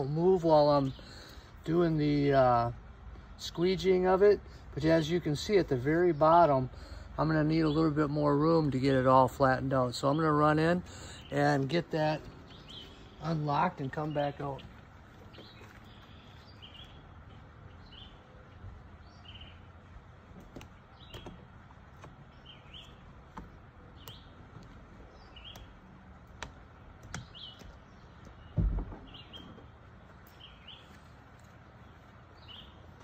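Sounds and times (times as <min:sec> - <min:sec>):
small bird chirping: 0:12.3 - 0:26.0, 0:27.0 - 0:33.0.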